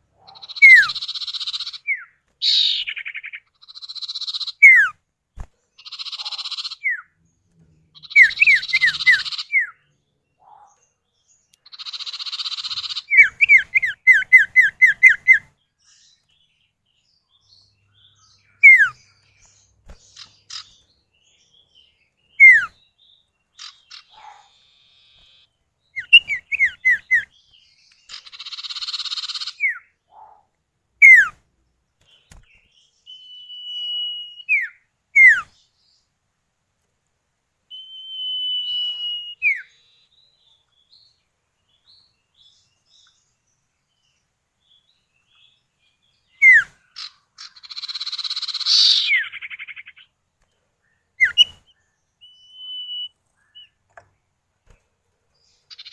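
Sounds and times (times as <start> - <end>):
harsh buzzy bird chatter: 0.0 - 7.0, 8.0 - 9.7, 11.6 - 15.6, 18.0 - 22.8, 23.4 - 30.4, 46.4 - 50.2, 55.5 - 55.9
bird whistles: 0.3 - 5.0, 18.6 - 19.0, 22.4 - 22.8, 26.0 - 27.3, 31.0 - 31.4, 33.1 - 35.5, 37.7 - 39.7, 46.4 - 49.7, 51.2 - 51.6, 52.2 - 53.8.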